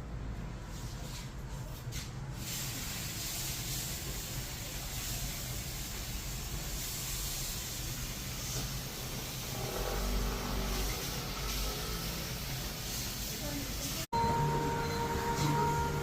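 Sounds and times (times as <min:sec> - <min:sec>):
airy hiss: 0:02.4 - 0:14.1.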